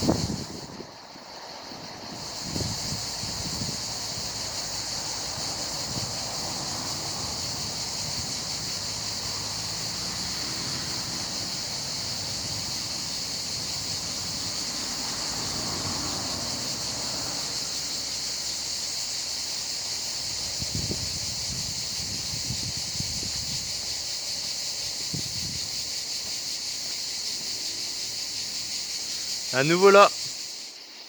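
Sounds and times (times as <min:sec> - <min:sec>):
wind rumble on microphone: 0:00.0 - 0:01.1, 0:01.7 - 0:16.4, 0:20.2 - 0:24.2, 0:24.8 - 0:25.9
high-pitched hiss: 0:00.0 - 0:31.0.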